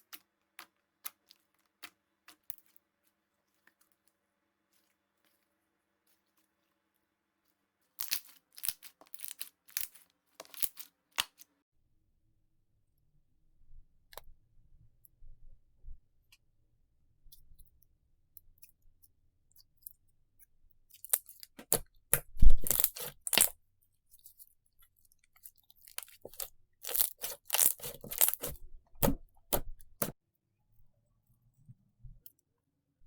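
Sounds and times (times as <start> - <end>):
slime squeezed by hand crackling: 26.2 - 30.1.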